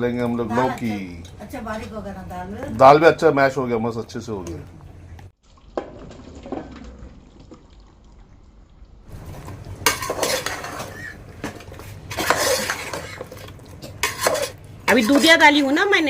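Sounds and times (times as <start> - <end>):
spoon scraping a cooking pot: 9.4 - 15.6.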